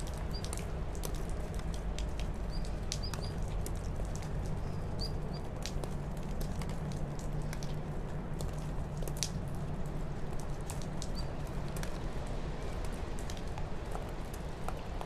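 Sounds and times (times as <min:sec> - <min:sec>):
high bird chirps: 0:02.5 - 0:03.4.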